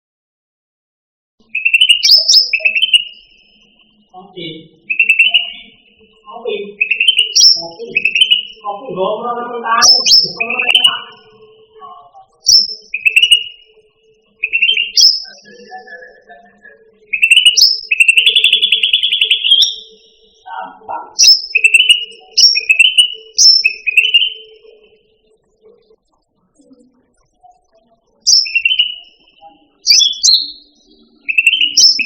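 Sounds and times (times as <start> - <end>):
bird singing whistled phrases: 1.4 - 3.8, 4.8 - 5.8, 6.7 - 8.7, 9.8 - 11.4, 12.4 - 13.7, 14.3 - 20.4, 21.2 - 25.0, 28.2 - 32.0.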